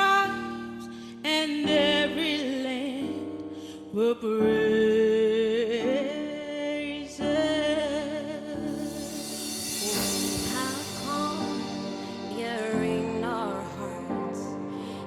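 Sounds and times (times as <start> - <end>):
soft backing music: 0.0 - 15.0
person singing gospel with vibrato: 8.5 - 15.0.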